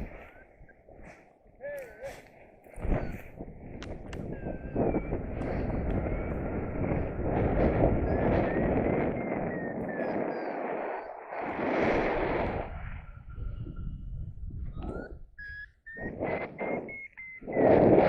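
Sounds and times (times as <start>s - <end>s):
wind gusting against microphone: 0.0s - 18.0s
thin whistle-like tone: 8.0s - 11.3s, 13.1s - 17.8s.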